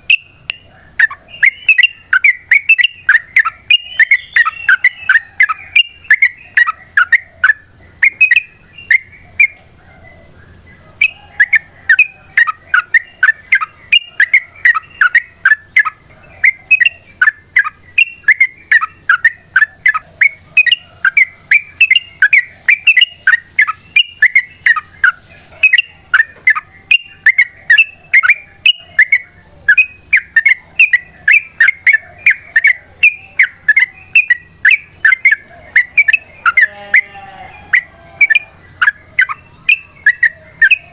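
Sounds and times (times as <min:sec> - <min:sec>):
bird singing sharp chirps: 0:00.0 - 0:09.6.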